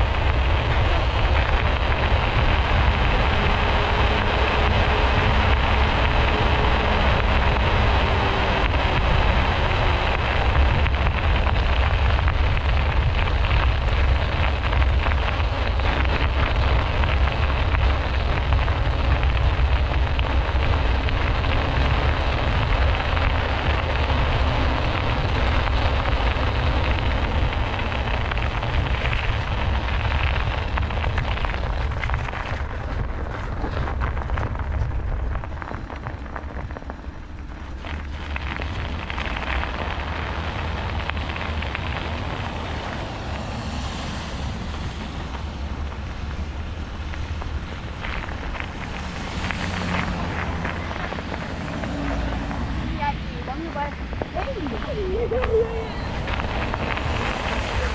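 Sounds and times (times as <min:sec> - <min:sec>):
bicycle tyres rolling on track: 0:00.0 - 0:57.9
wind buffeting microphone: 0:00.0 - 0:57.9.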